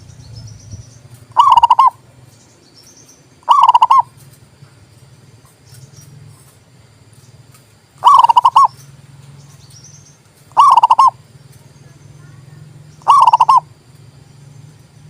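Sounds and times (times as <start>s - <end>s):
dove cooing: 1.3s - 2.0s, 3.4s - 4.2s, 8.0s - 8.8s, 10.5s - 11.3s, 12.2s - 13.8s.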